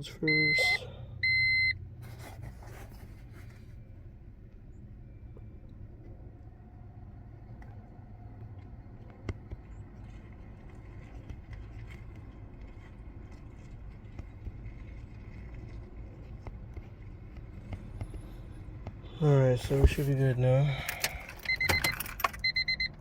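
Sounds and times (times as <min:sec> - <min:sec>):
low background rumble: 0:00.0 - 0:23.0
faint clicks and taps: 0:07.5 - 0:19.0.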